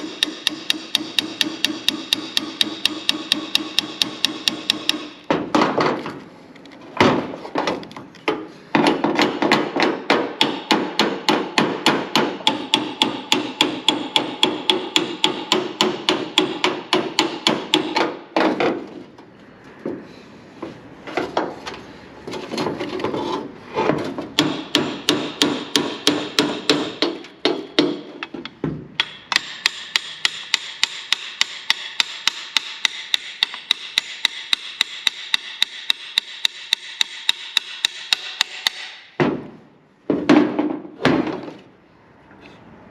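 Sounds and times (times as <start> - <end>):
hammer striking metal: 0.0 - 5.6, 8.8 - 18.3, 24.4 - 28.3, 29.0 - 39.4.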